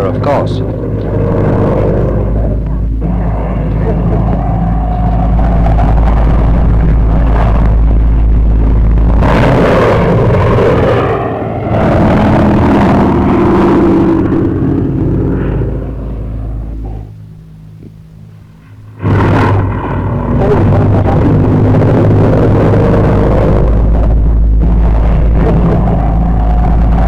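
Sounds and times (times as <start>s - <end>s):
aircraft engines roaring: 0.0s - 27.0s.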